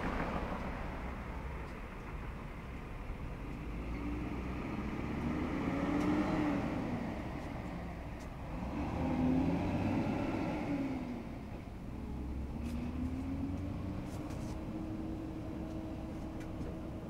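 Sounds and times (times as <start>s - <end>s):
road vehicles passing by: 0.0s - 17.0s
steady traffic rumble: 0.0s - 17.0s.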